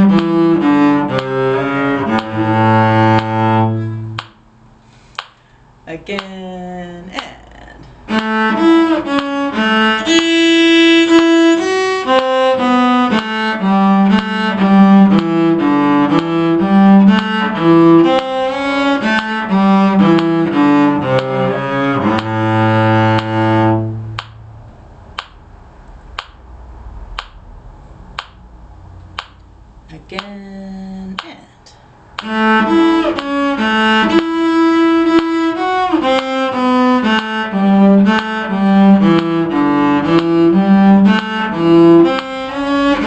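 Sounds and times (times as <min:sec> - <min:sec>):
faint ticks: 0:20.1 - 0:20.4, 0:22.2 - 0:22.4, 0:23.1 - 0:23.6.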